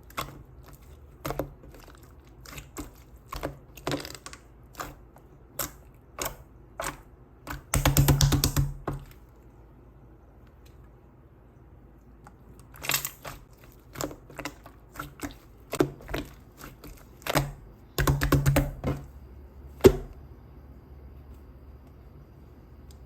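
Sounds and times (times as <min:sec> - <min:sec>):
slime squished by hand: 0:12.1 - 0:19.1.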